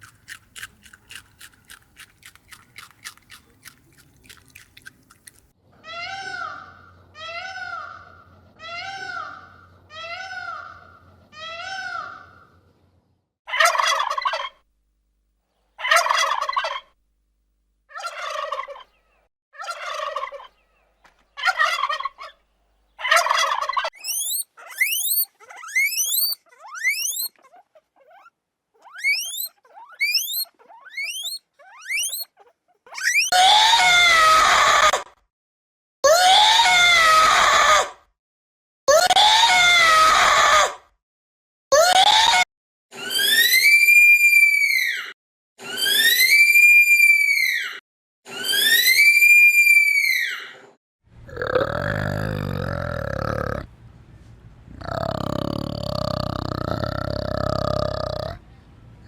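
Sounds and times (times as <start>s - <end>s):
rasping gobble-like calls: 13.5s - 14.6s, 15.8s - 17.0s, 17.9s - 19.0s, 19.6s - 20.6s, 21.4s - 22.4s, 23.0s - 28.3s, 28.9s - 34.0s
loud screaming calls: 23.0s - 27.4s, 28.1s - 35.0s, 36.1s - 38.0s, 39.1s - 40.8s, 43.0s - 50.6s
arched animal calls: 23.0s - 34.9s, 51.3s - 53.7s, 54.7s - 58.4s
thin rising whistles: 24.0s - 27.3s, 29.0s - 32.3s, 33.0s - 33.3s.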